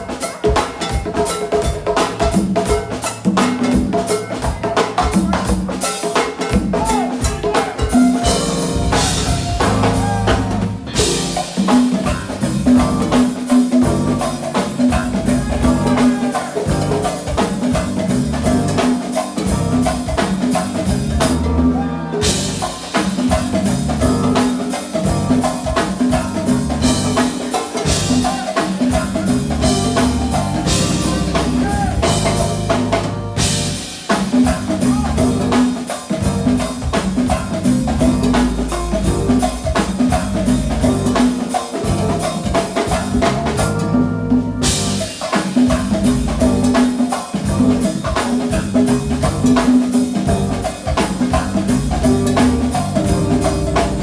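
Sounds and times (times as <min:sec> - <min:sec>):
drum kit: 0:00.0 - 0:54.0
live band playing a groove: 0:00.0 - 0:54.0
bass line: 0:08.1 - 0:13.2, 0:13.8 - 0:24.4, 0:25.0 - 0:28.4, 0:29.0 - 0:33.9, 0:34.5 - 0:35.6, 0:37.3 - 0:41.2, 0:43.0 - 0:45.1, 0:50.3 - 0:50.8, 0:51.4 - 0:54.0.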